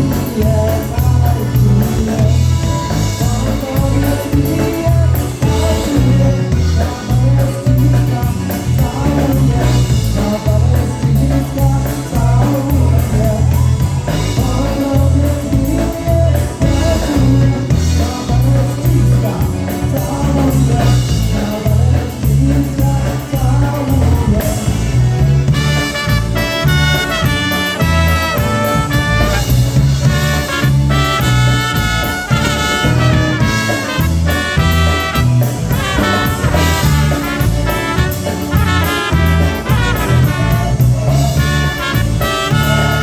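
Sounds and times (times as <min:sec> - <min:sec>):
person singing: 0:00.0 - 0:43.0
polka band playing: 0:00.0 - 0:43.0
brass holding notes: 0:25.5 - 0:43.0.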